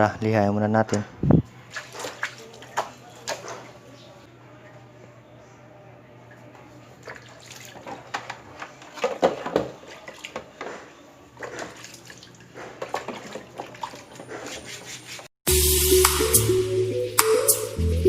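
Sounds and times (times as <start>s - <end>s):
water splashing: 1.6s - 3.9s, 6.9s - 14.5s
wet sanding plastic by hand: 14.2s - 15.3s.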